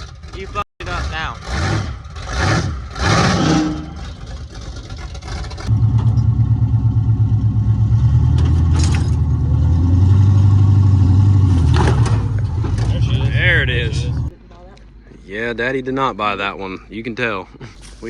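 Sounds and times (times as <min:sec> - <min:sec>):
truck engine running loud: 0:00.1 - 0:14.3
low pulsing exhaust note: 0:05.7 - 0:14.3.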